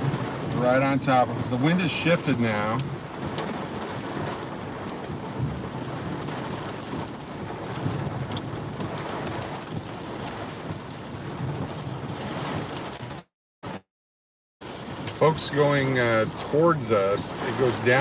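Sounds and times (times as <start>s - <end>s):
gusting wind: 0.0s - 13.2s
heavy rain: 0.0s - 13.8s, 14.6s - 18.0s.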